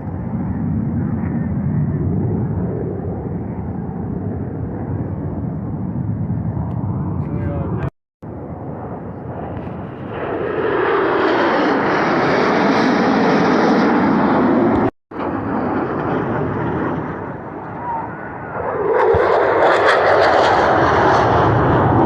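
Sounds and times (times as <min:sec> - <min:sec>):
aircraft flying overhead: 0:00.0 - 0:22.0.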